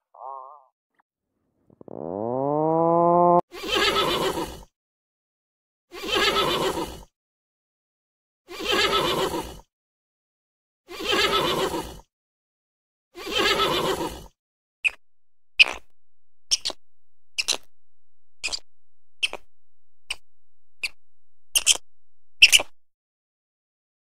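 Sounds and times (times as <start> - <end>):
horse neighing: 1.8 - 4.4, 13.3 - 14.1.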